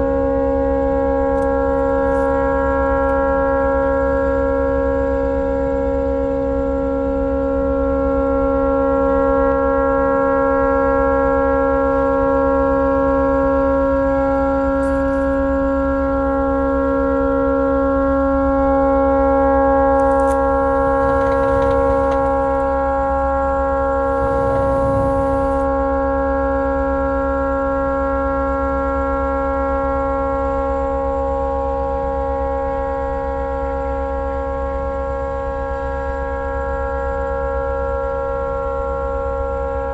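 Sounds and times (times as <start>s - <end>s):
tugboat horn continuous blast: 0.0s - 39.8s
bursts of rushing noise: 20.2s - 23.2s, 23.8s - 25.7s.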